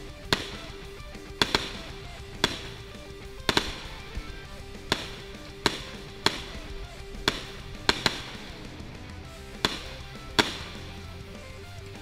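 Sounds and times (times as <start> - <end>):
fireworks bangs: 3.5 - 8.7, 9.6 - 11.0.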